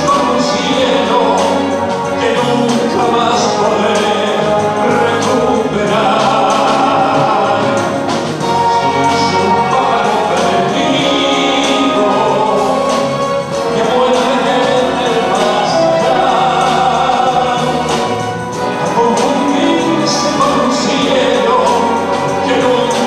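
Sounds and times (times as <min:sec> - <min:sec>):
orchestra playing held chords: 0:00.0 - 0:23.0.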